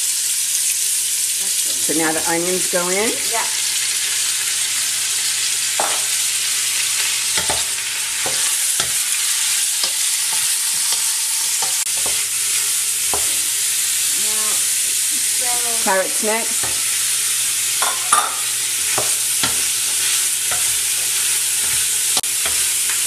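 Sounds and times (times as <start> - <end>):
food sizzling in a pot: 0.0 - 23.0
spoon knocking against pot: 17.8 - 19.6.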